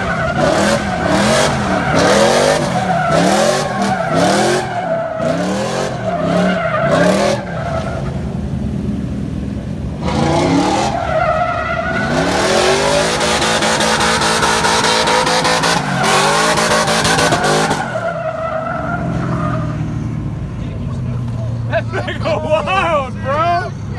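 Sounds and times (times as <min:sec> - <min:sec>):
tyres squealing: 0:00.0 - 0:08.2, 0:10.0 - 0:20.2
engine bouncing off rev limiter: 0:00.0 - 0:20.4.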